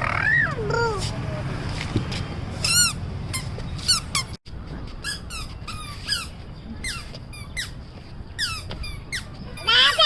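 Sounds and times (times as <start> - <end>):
squeaky sandals squeaking: 2.6 - 10.0.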